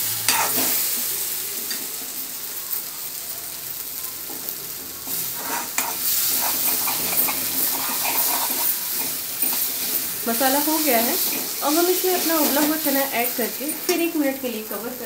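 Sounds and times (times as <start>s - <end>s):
masala sizzling in oil: 0.0s - 15.0s
spatula scraping a wok: 0.1s - 2.1s, 5.0s - 13.9s.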